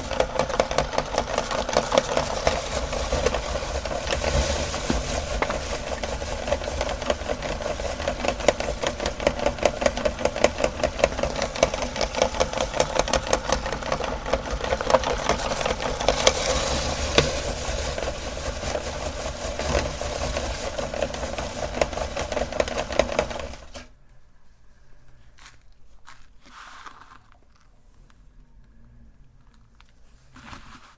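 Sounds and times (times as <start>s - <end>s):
auger crunching cookies: 0.0s - 23.7s, 25.2s - 30.9s
meat grinder motor humming: 0.0s - 23.9s.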